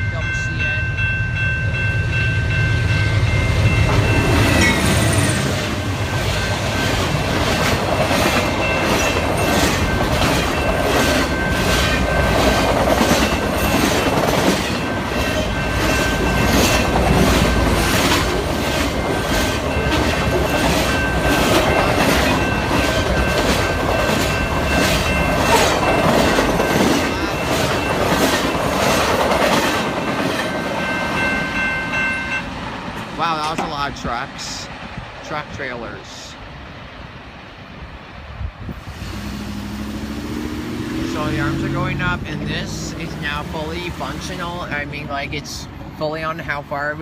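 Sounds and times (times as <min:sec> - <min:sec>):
train wheels clicking over rail joints: 0:03.8 - 0:31.6, 0:32.8 - 0:34.5.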